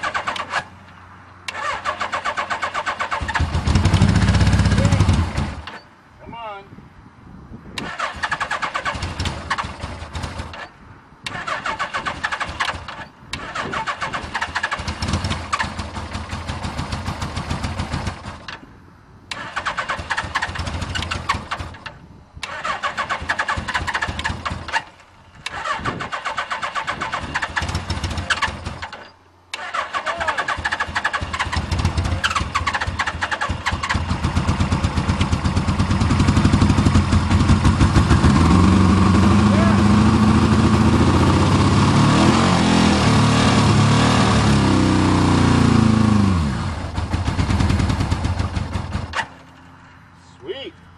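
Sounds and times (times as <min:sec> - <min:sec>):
motorcycle electric starter cranking: 0:00.0 - 0:00.7, 0:01.5 - 0:05.9, 0:07.8 - 0:18.6, 0:19.3 - 0:38.2
motorcycle engine catching and running: 0:00.0 - 0:05.9, 0:07.8 - 0:18.7, 0:19.3 - 0:49.6.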